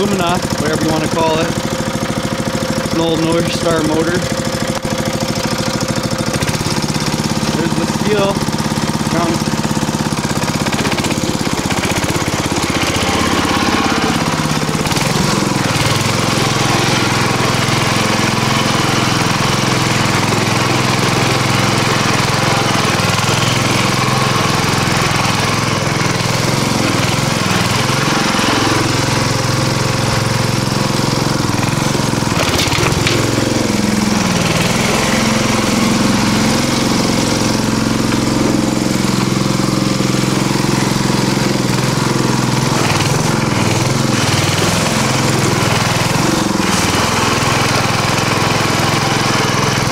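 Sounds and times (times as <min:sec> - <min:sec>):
lawnmower engine running: 0:00.0 - 0:49.9
sharp clatter: 0:31.4 - 0:38.4.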